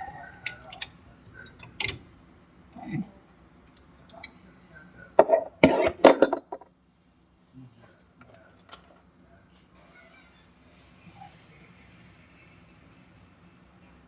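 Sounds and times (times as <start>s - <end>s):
hand tools clinking and rattling: 0.4s - 2.2s, 5.2s - 6.7s.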